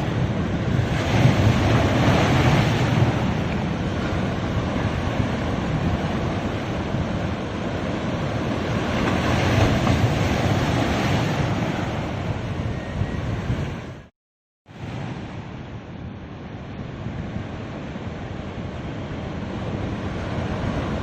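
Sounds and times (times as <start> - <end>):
surf washing onto beach: 0.0 - 12.6
wind buffeting microphone: 0.0 - 14.1.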